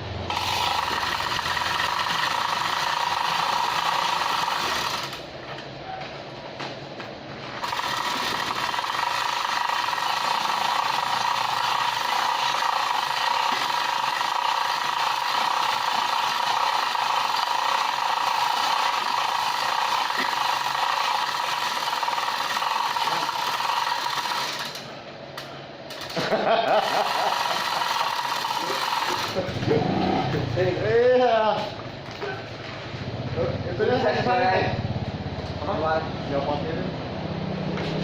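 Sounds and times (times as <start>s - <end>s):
power tool whining: 0.2s - 5.3s, 7.6s - 24.9s, 26.8s - 30.4s.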